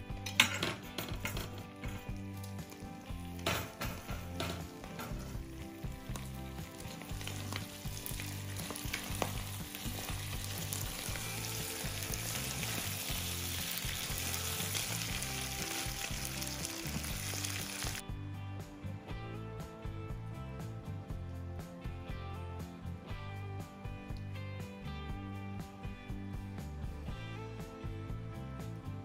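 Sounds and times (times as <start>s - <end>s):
background music: 0.0s - 29.0s
food sizzling in a frying pan: 1.0s - 18.0s.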